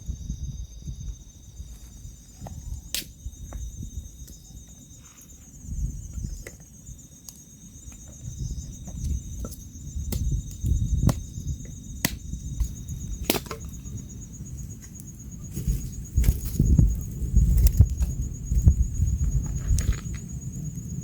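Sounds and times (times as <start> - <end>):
crickets chirping: 0.0 - 21.0
wood cracking and snapping: 12.0 - 13.8.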